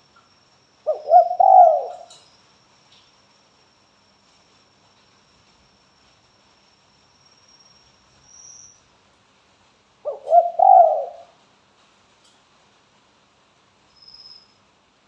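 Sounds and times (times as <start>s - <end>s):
dove cooing: 0.8s - 2.2s, 10.0s - 11.3s.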